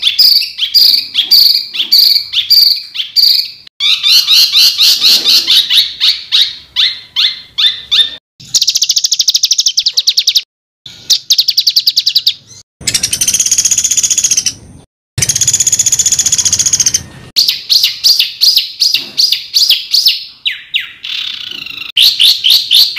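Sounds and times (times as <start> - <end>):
songbird singing trills: 11.2 - 14.6.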